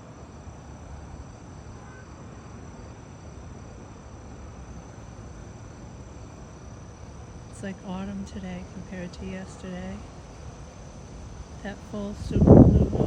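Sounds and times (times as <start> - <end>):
high-pitched insect chorus: 0.0 - 13.0
wind buffeting the microphone: 9.2 - 13.0.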